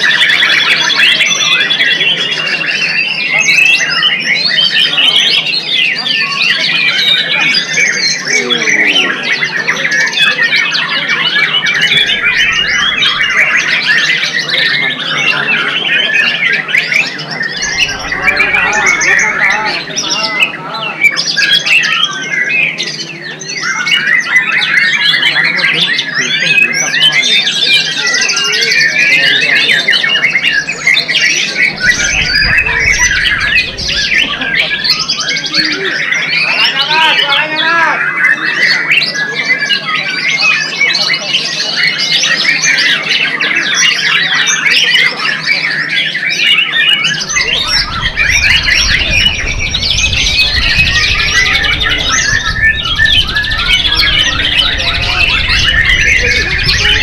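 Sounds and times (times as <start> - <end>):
bird singing whistles and chatter: 0.0 - 57.0.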